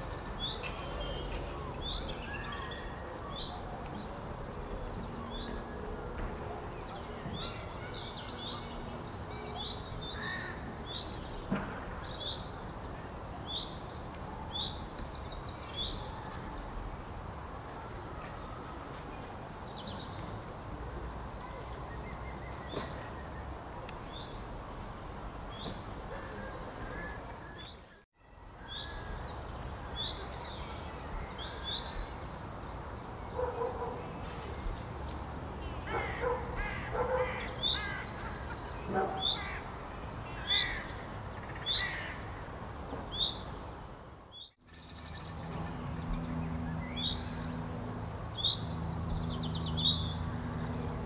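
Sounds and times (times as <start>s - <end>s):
small birds chirping: 0.0s - 24.4s.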